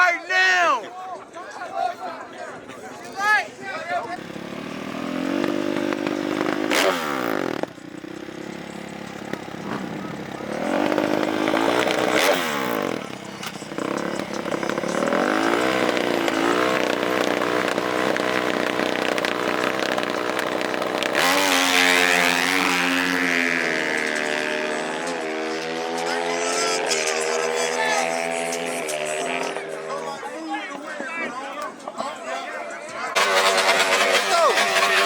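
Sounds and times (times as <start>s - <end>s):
dirt bike and atv engines revving: 4.0s - 30.4s, 33.1s - 35.0s.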